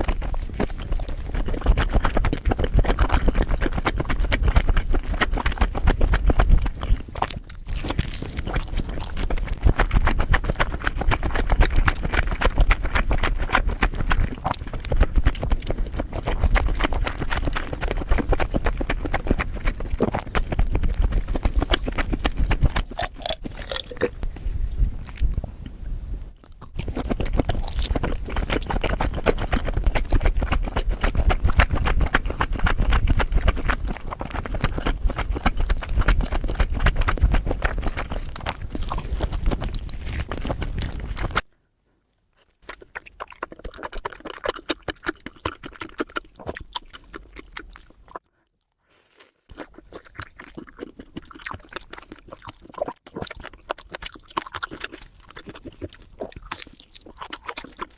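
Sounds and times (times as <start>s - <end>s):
wet chewing and crunching: 0.0s - 41.5s, 42.1s - 57.9s.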